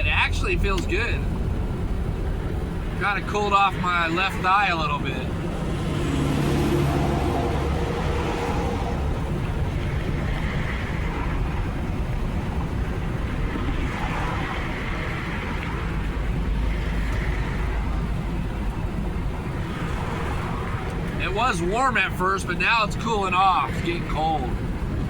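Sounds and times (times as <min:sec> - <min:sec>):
truck engine and road noise: 0:00.0 - 0:25.0.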